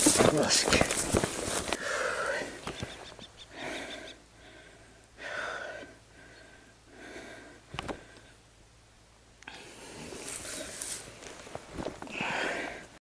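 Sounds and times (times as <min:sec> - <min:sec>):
person breathing hard: 0:01.6 - 0:02.6, 0:03.5 - 0:08.5, 0:12.0 - 0:13.0.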